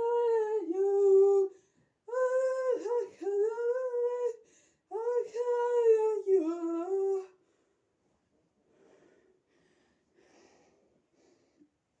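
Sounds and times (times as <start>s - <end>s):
faint breaths: 8.6s - 11.9s.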